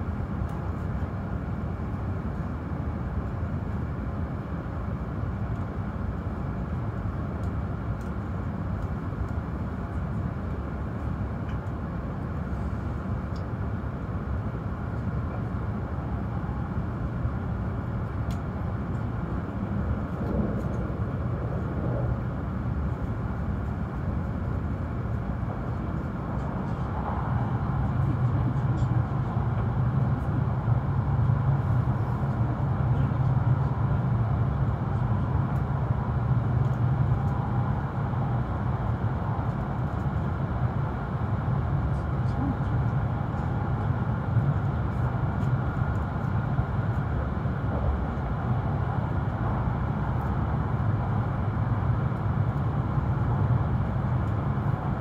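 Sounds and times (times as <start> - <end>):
train rumbling: 14.0 - 55.0.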